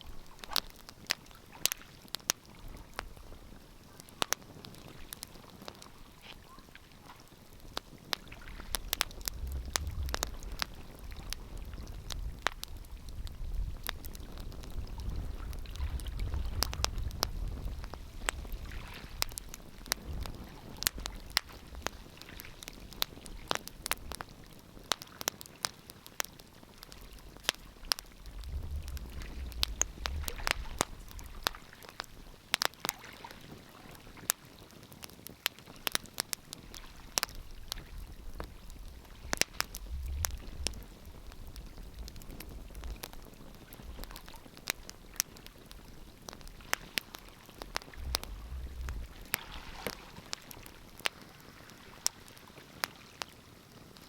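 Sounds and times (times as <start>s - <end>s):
wood fire crackling: 0.0s - 54.0s
low rumble: 28.0s - 31.5s, 38.0s - 43.2s, 47.5s - 50.0s.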